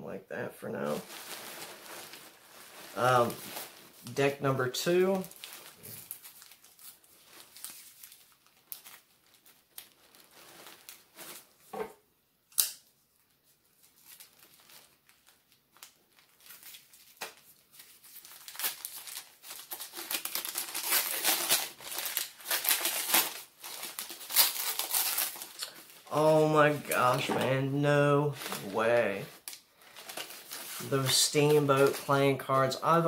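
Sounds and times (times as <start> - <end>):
paper wrapping crinkling and tearing: 0.8 - 11.6, 13.2 - 33.0.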